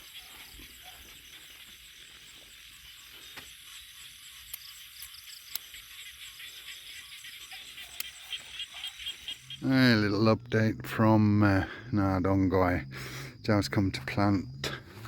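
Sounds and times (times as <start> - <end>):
insects chirring: 0.0 - 15.0
faint sharp clicks: 4.5 - 5.7.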